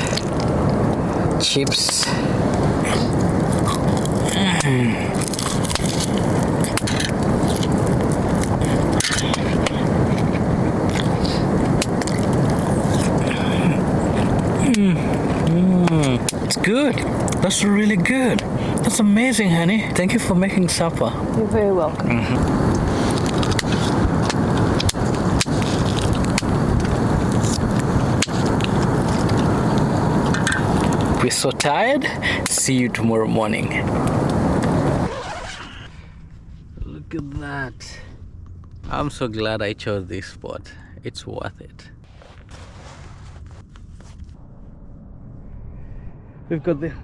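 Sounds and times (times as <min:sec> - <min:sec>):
wind buffeting microphone: 0:00.0 - 0:35.1
clicks and scrapes: 0:05.2 - 0:13.2.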